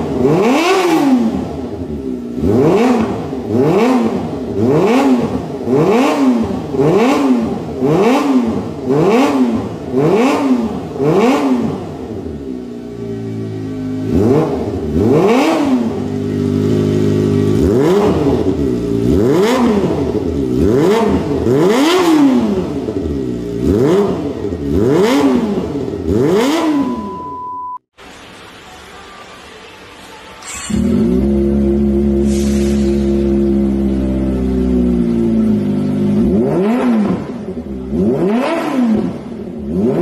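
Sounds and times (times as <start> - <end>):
motorcycle engine revving: 0.0 - 27.4, 30.4 - 40.0
motorcycle engine idling: 11.8 - 26.6, 30.6 - 32.3, 33.0 - 36.3.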